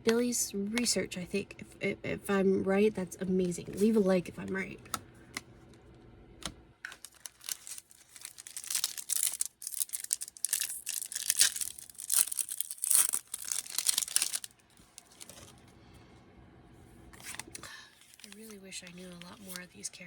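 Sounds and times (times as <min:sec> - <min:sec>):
foil wrapper tearing and crinkling: 0:06.8 - 0:15.6, 0:17.2 - 0:19.7.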